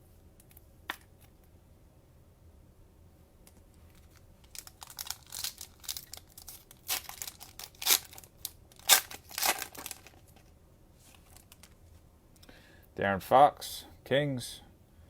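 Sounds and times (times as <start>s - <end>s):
cellophane wrapper crinkling and ripping: 3.9s - 11.8s.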